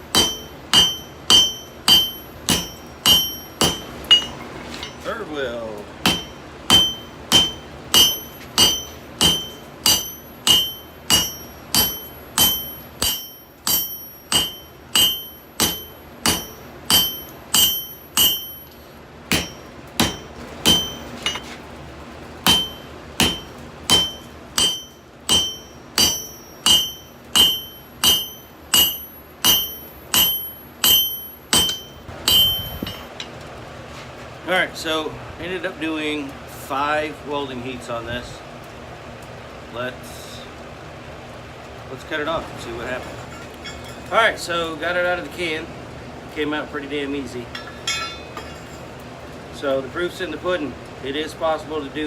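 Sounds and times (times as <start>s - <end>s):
hammer ringing on hot steel: 0.0s - 5.2s, 6.0s - 21.5s, 22.5s - 33.3s, 43.3s - 44.1s, 47.5s - 48.8s.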